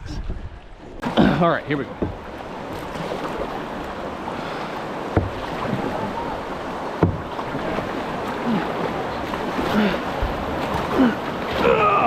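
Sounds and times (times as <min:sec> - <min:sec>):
river water rushing: 0:00.8 - 0:12.0
sharp knocks: 0:05.1 - 0:05.4, 0:07.0 - 0:07.3.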